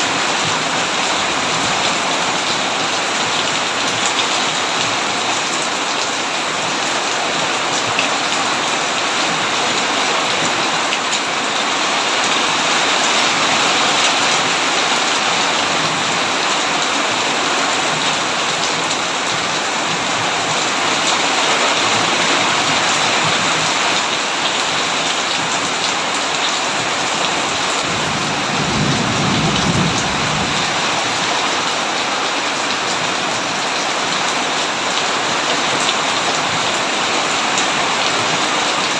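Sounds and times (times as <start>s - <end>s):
heavy rain falling: 0.0s - 38.9s
thunder rumbling: 27.8s - 31.4s.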